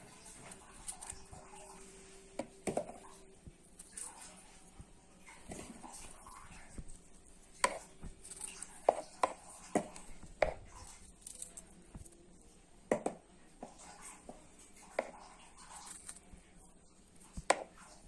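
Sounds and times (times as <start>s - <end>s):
knife cutting strawberries: 0.0s - 1.8s, 2.4s - 16.5s.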